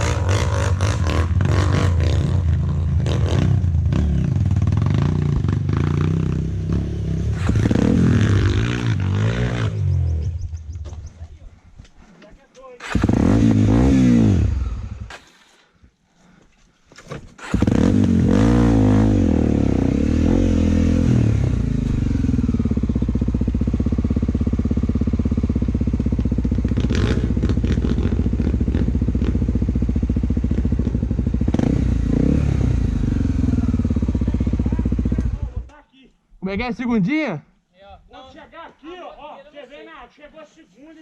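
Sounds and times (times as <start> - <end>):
motorcycle engine revving: 0.0 - 11.0, 12.8 - 15.3, 17.4 - 35.7.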